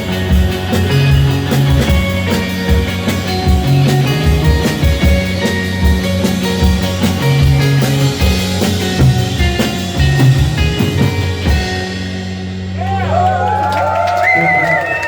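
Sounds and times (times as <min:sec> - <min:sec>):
live rock band playing: 0:00.0 - 0:14.5.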